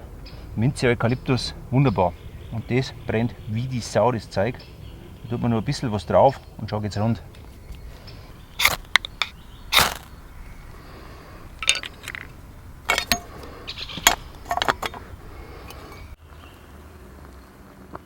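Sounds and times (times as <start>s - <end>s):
metal gear scraping: 8.3s - 16.1s
metallic clinks: 8.4s - 16.1s.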